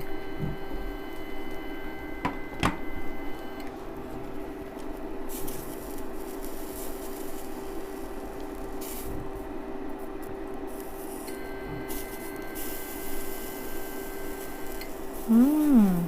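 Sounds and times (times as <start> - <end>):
steady hum: 0.0 - 16.0
sausages sizzling in a frying pan: 4.2 - 16.0.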